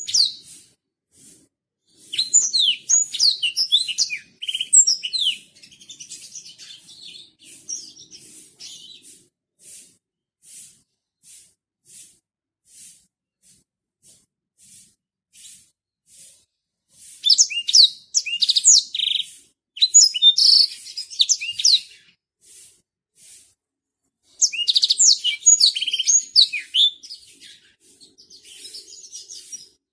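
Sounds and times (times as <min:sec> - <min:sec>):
canary twittering song: 0:00.0 - 0:00.7, 0:01.9 - 0:09.2, 0:17.1 - 0:22.2, 0:24.3 - 0:29.8
canary chirps: 0:00.0 - 0:09.9, 0:17.1 - 0:22.6, 0:24.3 - 0:29.9.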